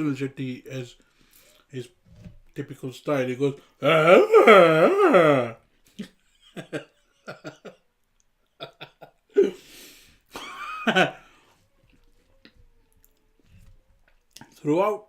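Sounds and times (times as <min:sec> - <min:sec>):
man grunting and coughing: 0:03.8 - 0:05.6
man strained vocal cry: 0:03.8 - 0:05.6.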